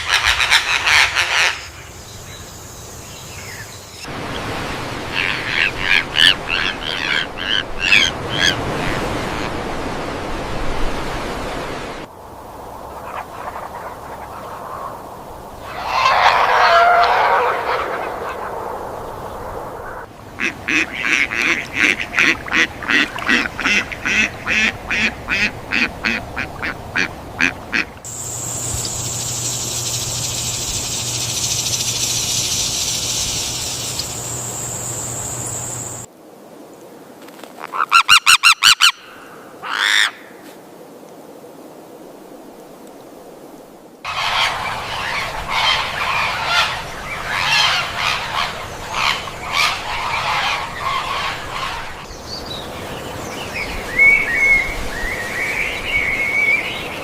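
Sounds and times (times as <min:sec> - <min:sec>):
waterfowl honking calls: 0:00.0 - 0:01.8, 0:05.1 - 0:09.0, 0:15.7 - 0:18.5, 0:20.4 - 0:36.1, 0:44.1 - 0:52.1
steady high hiss: 0:28.1 - 0:37.4.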